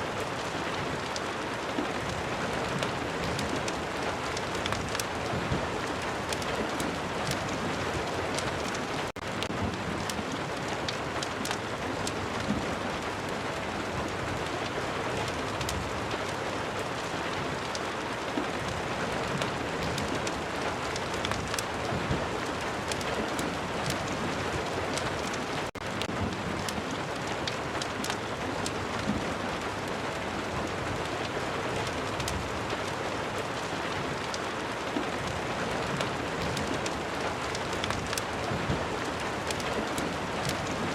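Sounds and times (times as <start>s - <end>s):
steady rain hiss: 0.0s - 40.9s
fireplace crackling ticks: 2.8s - 12.5s, 19.4s - 21.7s, 22.4s - 29.1s, 31.8s - 33.0s, 35.2s - 40.9s.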